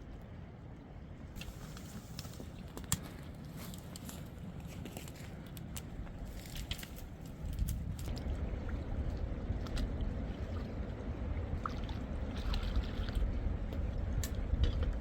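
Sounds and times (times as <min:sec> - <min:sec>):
wind buffeting microphone: 0:05.4 - 0:15.0.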